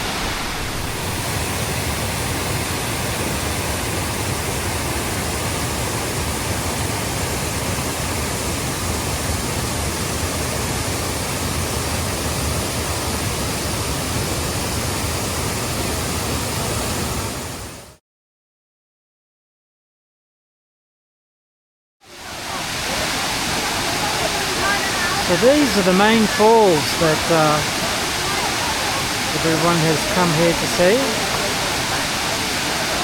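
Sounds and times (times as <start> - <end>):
waterfall rushing: 0.0 - 18.0, 22.1 - 33.0.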